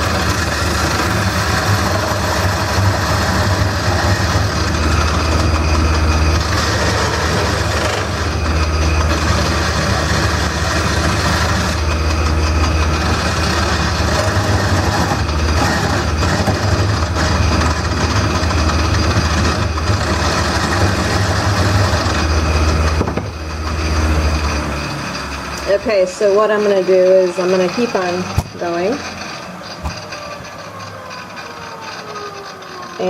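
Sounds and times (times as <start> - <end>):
lathe motor hum: 0.0 - 33.0
turning tool scraping wood: 0.0 - 33.0.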